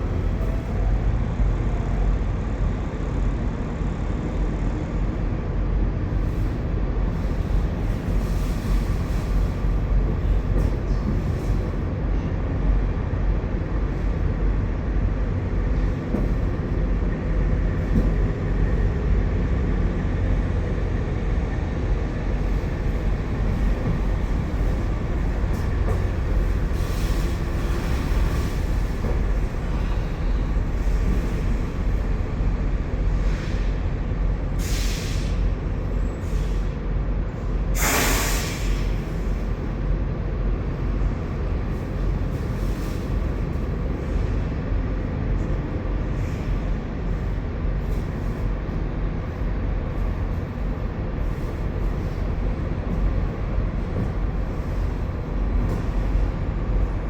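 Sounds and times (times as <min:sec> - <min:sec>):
engine running: 0:40.0 - 0:57.0.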